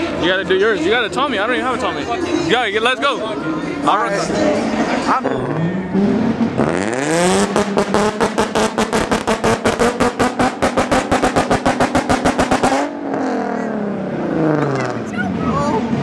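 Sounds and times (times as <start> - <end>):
sports car engine revving: 3.3 - 16.0.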